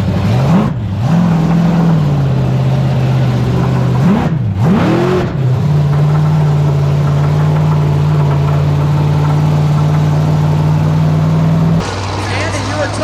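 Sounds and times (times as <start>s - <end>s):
truck engine at high revs: 0.0s - 13.0s.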